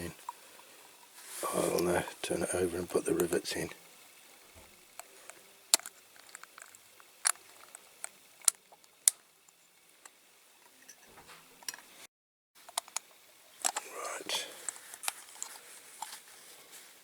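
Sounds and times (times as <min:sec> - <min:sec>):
model parts clicking: 0:05.7 - 0:10.2, 0:12.7 - 0:16.1.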